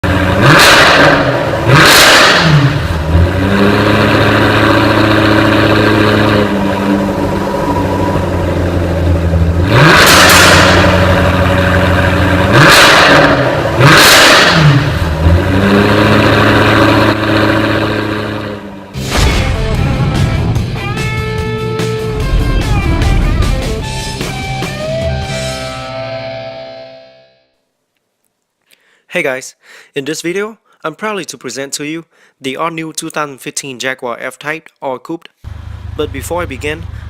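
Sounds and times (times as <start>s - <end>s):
car engine revving and idling: 0.0s - 19.0s, 35.5s - 37.0s.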